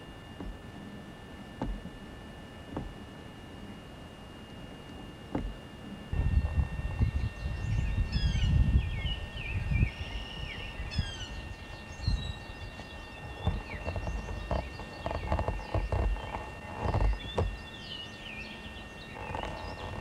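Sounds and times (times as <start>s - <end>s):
low rumbling microphone noise: 0.0s - 20.0s
birds singing: 4.8s - 20.0s.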